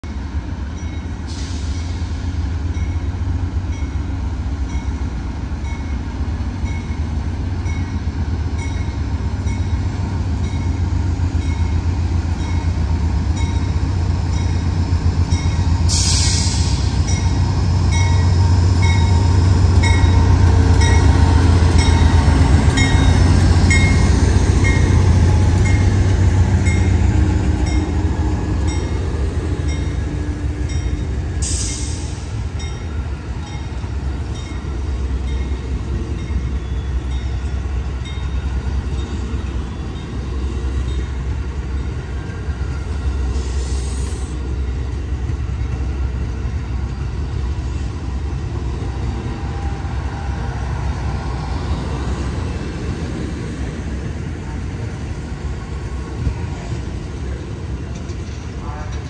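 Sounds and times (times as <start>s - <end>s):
locomotive engine rumbling: 0.2s - 59.0s
air hiss bursts: 15.9s - 17.1s, 43.3s - 44.4s
locomotive bell ringing: 17.0s - 27.0s.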